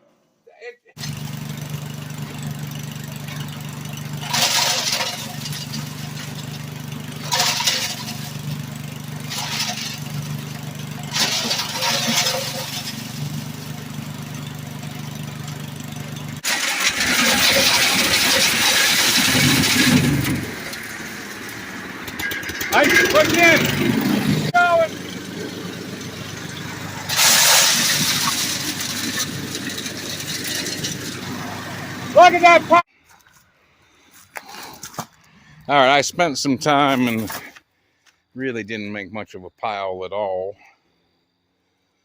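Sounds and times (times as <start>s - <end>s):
wood chipper engine running: 1.0s - 32.8s
wood chipping noise: 1.0s - 33.3s.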